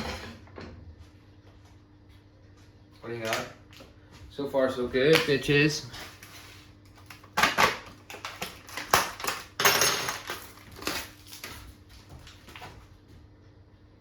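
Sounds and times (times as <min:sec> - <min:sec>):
utensils and containers clinking: 0:05.1 - 0:11.7.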